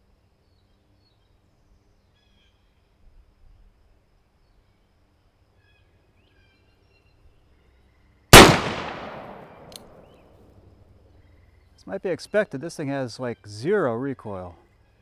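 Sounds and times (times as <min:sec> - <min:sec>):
revolver shot with echo: 0:08.4 - 0:09.8.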